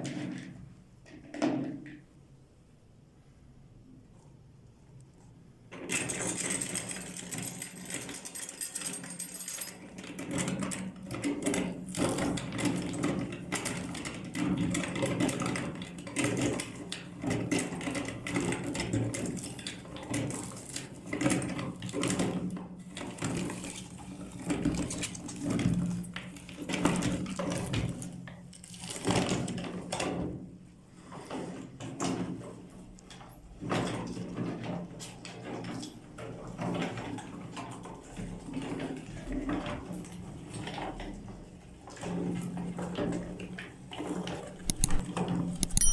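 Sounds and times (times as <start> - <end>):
peppers crunching in grinder: 44.6 - 45.0.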